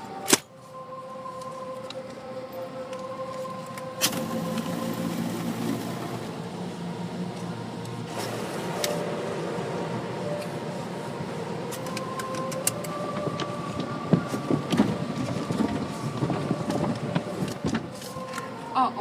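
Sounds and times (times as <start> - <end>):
car wash machinery hum: 0.0 - 19.0
machine whine: 0.0 - 19.0.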